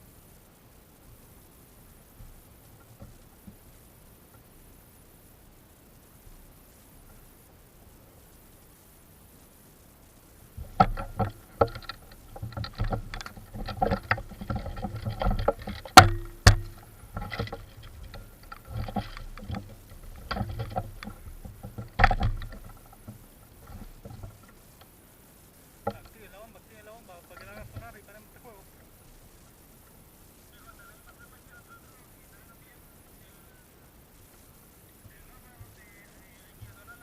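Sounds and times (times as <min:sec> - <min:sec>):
crunching and rustling undergrowth: 0:01.0 - 0:37.0
sharp cracks: 0:10.5 - 0:24.7.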